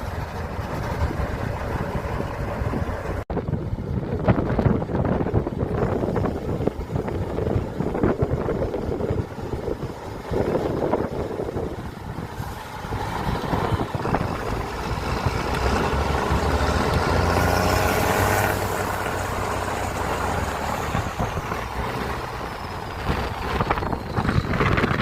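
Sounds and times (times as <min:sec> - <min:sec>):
truck engine revving: 0:05.6 - 0:25.0.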